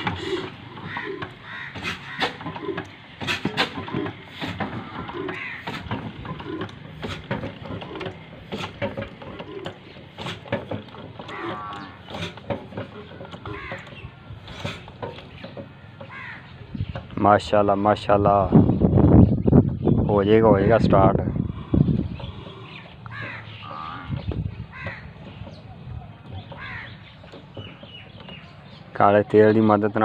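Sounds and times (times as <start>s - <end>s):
sharp knocks and clicks: 0.0s - 16.2s, 16.8s - 17.2s, 22.2s - 29.5s
birds cawing: 0.0s - 17.0s, 20.3s - 30.0s.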